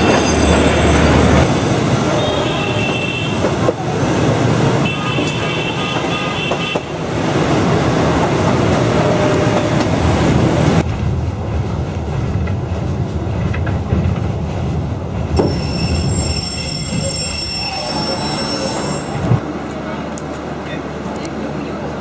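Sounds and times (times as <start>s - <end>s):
train wheels rumbling on rails: 0.0s - 22.0s
high wheel squeals: 15.4s - 19.4s.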